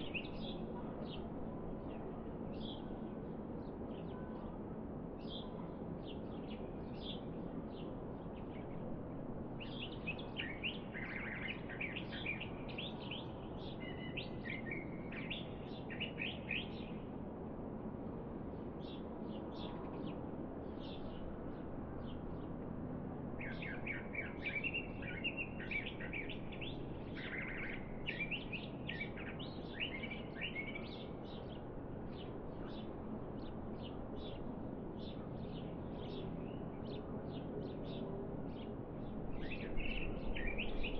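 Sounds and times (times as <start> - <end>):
low outdoor background hum: 0.0 - 40.9
small birds chirping: 23.4 - 34.4, 35.0 - 40.9.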